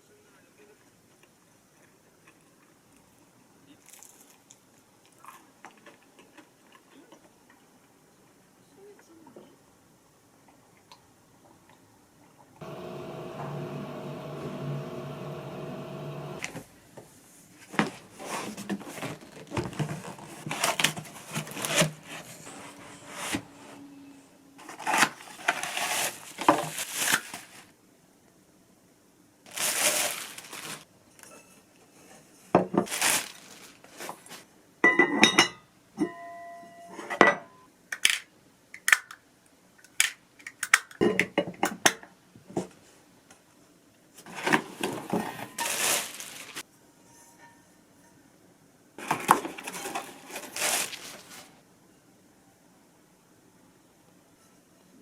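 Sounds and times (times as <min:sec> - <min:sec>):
electric appliance hum: 0:12.6 - 0:16.7
dishes and utensils clattering: 0:34.9 - 0:36.2.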